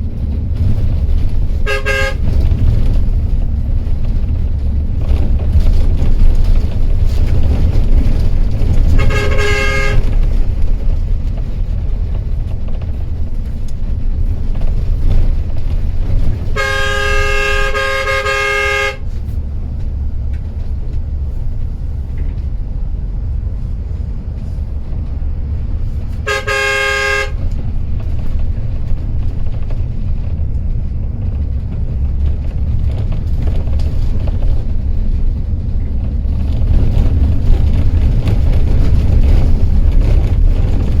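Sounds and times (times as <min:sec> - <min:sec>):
coach engine and road rumble: 0:00.0 - 0:41.0
multi-tone horn blasts: 0:01.6 - 0:02.9, 0:08.8 - 0:10.4, 0:16.5 - 0:19.1, 0:26.2 - 0:27.5.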